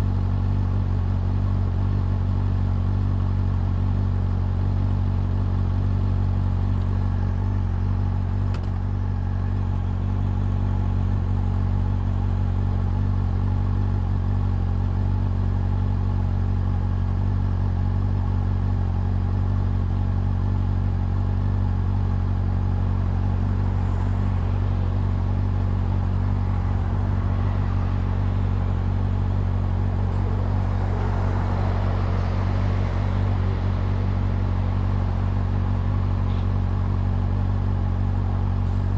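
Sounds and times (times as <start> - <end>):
motorcycle engine running steadily: 0.0 - 38.9
rushing noise: 23.6 - 36.0.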